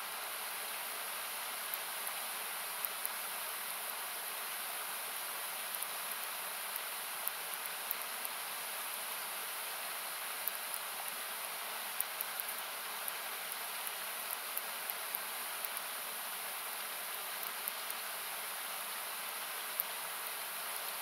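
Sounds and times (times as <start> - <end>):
campfire crackling: 5.6 - 19.0.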